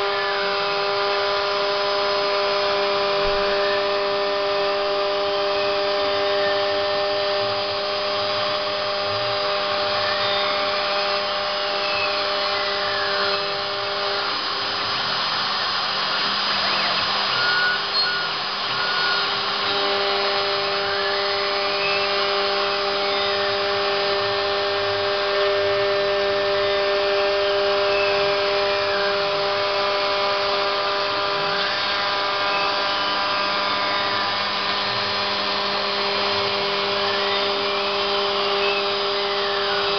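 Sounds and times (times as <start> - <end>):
axis motor whine: 0.0 - 39.9
milling machine motor hum: 0.0 - 39.9.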